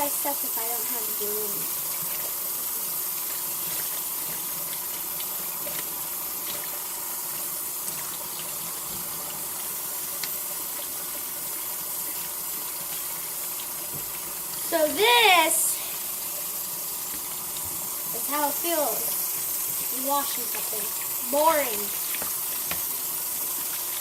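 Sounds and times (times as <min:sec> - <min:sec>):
tap running into sink: 0:21.9 - 0:24.0.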